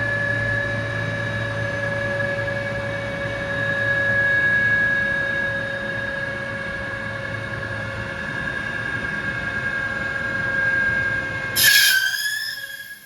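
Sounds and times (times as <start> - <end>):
lathe high whine: 7.0 - 13.0
hissing screech: 11.6 - 13.0.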